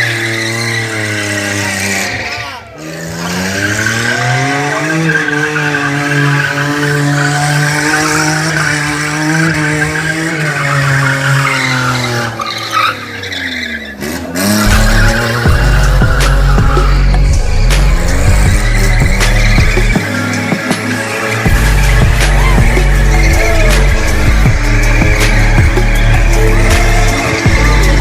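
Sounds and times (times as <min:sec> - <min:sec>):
car engine revving: 0:00.0 - 0:28.0
music with heavy bass beat: 0:14.4 - 0:28.0.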